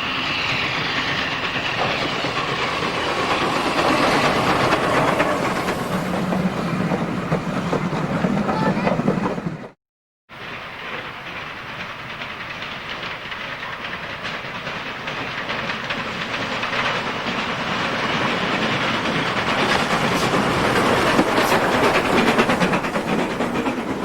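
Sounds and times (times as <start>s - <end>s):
train approaching: 0.0s - 24.0s
wheels clacking over rail joints: 0.1s - 9.8s, 10.5s - 24.0s.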